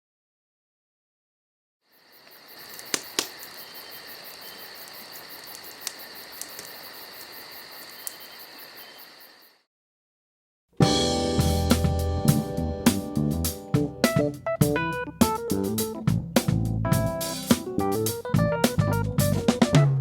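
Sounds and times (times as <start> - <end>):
high insect trill: 1.9 - 9.6
campfire crackling and popping: 2.2 - 7.3.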